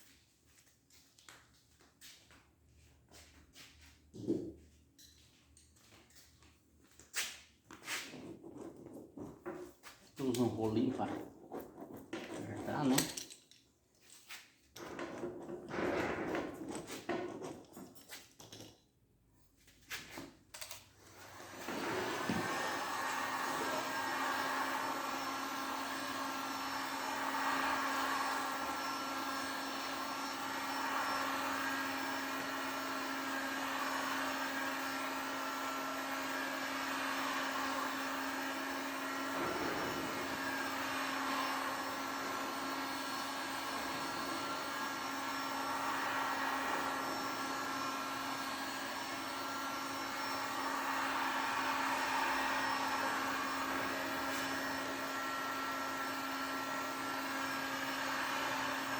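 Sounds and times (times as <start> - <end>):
heat gun fan humming: 20.5 - 58.9.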